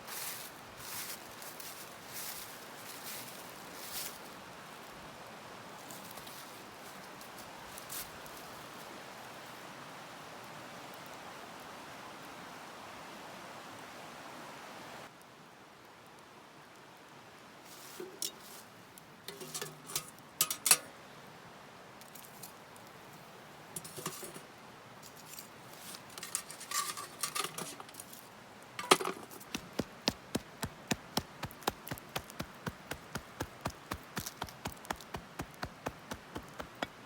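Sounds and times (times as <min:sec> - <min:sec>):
sharp clicks and clinks: 0:19.3 - 0:20.9, 0:26.2 - 0:28.2.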